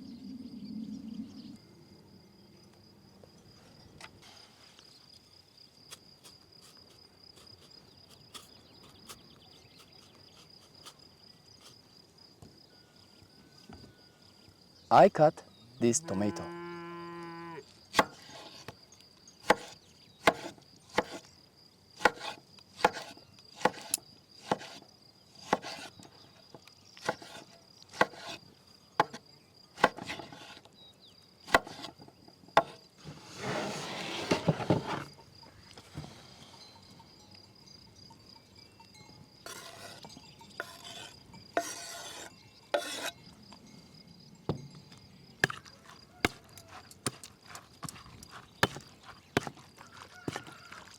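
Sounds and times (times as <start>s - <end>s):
high insect drone: 0.0s - 33.2s, 34.3s - 50.7s
knife cutting on wooden board: 22.0s - 24.8s, 25.4s - 25.9s, 28.0s - 28.4s, 39.5s - 40.0s, 40.6s - 43.1s.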